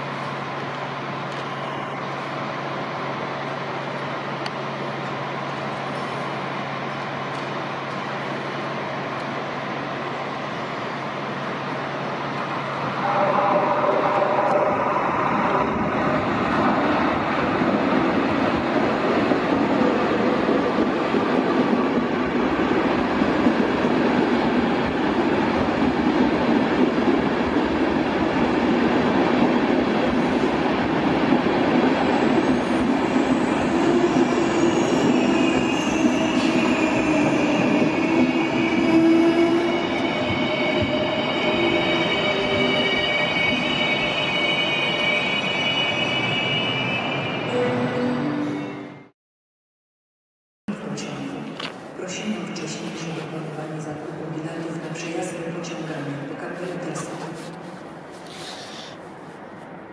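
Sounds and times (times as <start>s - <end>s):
train wheels rumbling on rails: 0.0s - 45.4s.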